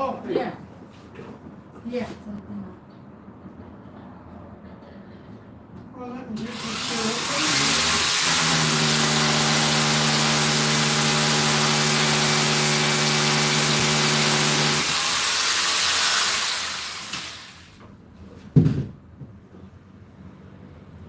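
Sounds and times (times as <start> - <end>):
electric drill boring into wall: 6.4 - 17.8.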